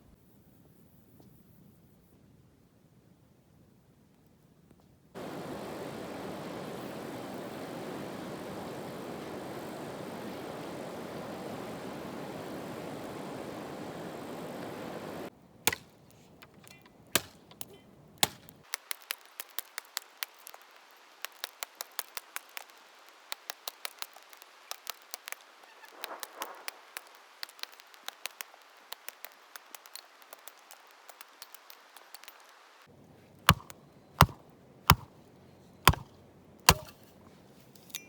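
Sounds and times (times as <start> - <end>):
steady rushing noise: 5.2 - 15.3
knife chopping on cutting board: 33.5 - 35.1, 35.9 - 36.1.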